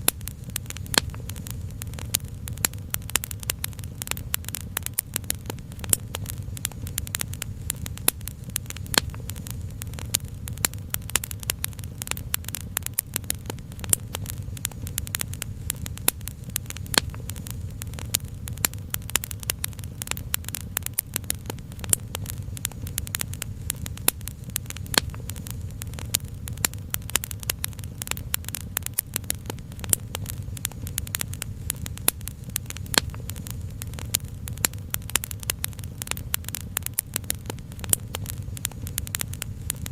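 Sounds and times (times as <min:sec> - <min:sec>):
low rumble: 0:00.0 - 0:28.6
wood fire crackling: 0:00.0 - 0:39.9.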